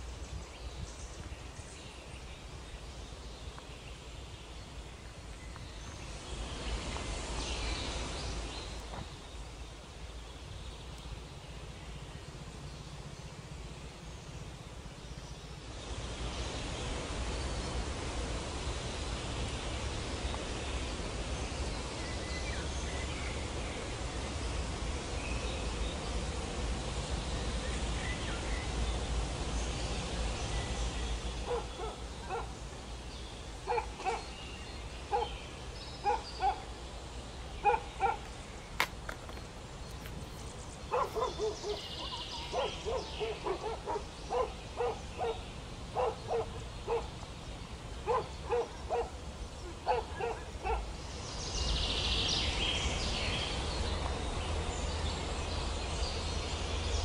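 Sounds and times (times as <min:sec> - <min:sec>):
birds chirping: 0:19.3 - 0:57.0.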